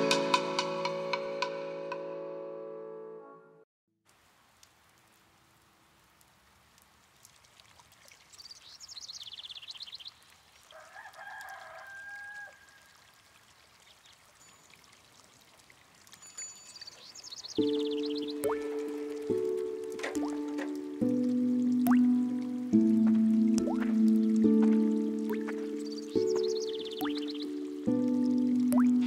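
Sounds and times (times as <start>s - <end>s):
low steady hiss: 4.1s - 10.9s
rooster crowing faintly: 10.7s - 13.4s.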